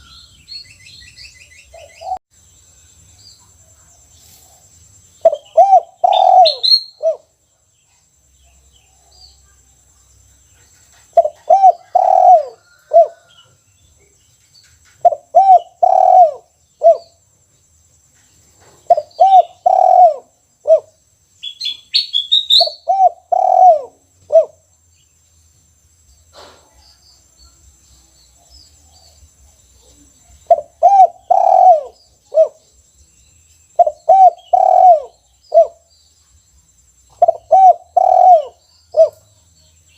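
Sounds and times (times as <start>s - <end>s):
high bird chirps: 5.2s - 7.2s, 21.4s - 24.0s
dove cooing: 5.2s - 7.4s, 11.0s - 13.4s, 15.0s - 17.2s, 18.8s - 21.0s, 22.5s - 24.6s, 29.9s - 32.6s, 33.8s - 35.9s, 37.2s - 39.3s.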